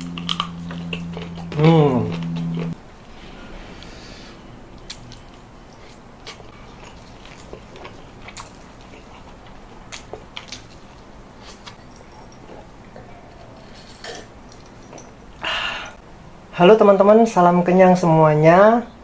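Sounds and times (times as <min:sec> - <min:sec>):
crunchy chewing: 0:00.0 - 0:03.6, 0:04.9 - 0:15.2.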